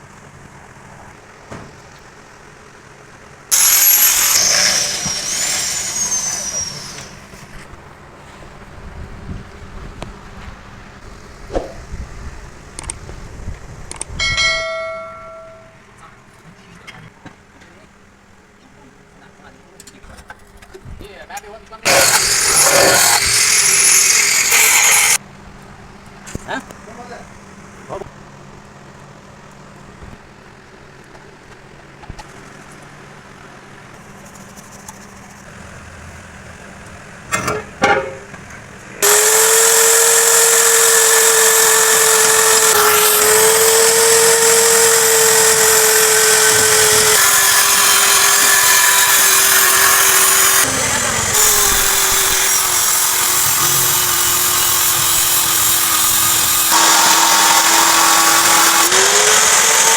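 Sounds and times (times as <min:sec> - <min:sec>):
electric power tool whining: 0:03.5 - 0:07.6, 0:21.9 - 0:25.2, 0:39.0 - 0:59.9.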